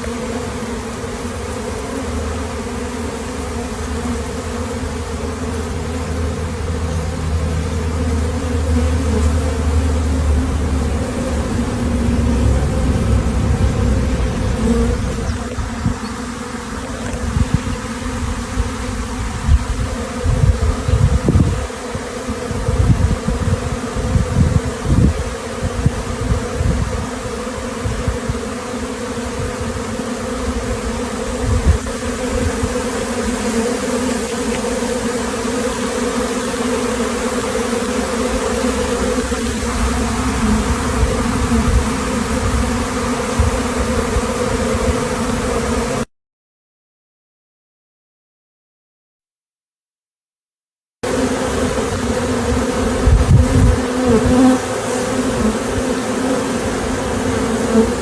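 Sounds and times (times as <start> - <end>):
bee swarm buzzing: 0.0 - 46.1, 51.0 - 58.0
low rumbles and thumps: 10.4 - 16.0.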